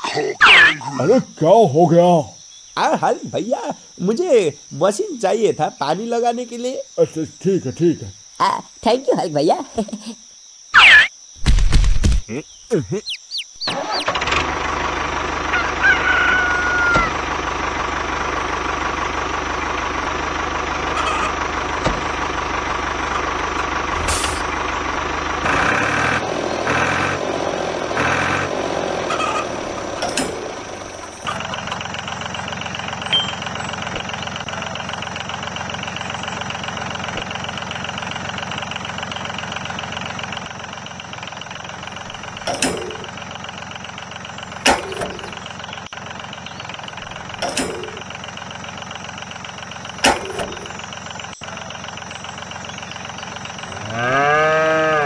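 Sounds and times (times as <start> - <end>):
hens clucking: 0.0 - 1.2, 12.3 - 55.0
tractor engine running: 11.4 - 55.0
rooster crowing: 15.4 - 17.4.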